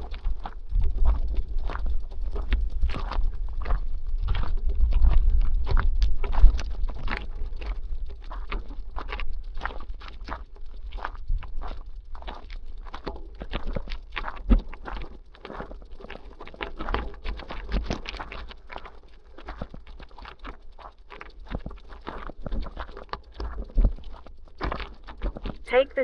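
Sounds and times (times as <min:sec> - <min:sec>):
wind on microphone: 0:00.0 - 0:12.2
bicycle rattling and clicking: 0:00.0 - 0:25.7.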